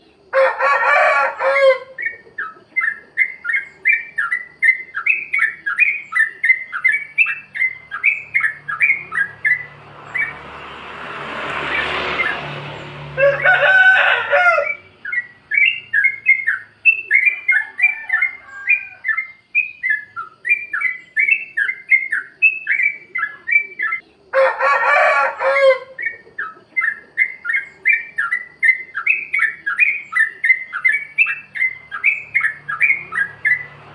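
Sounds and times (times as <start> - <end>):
harsh bird burst: 6.9 - 17.1.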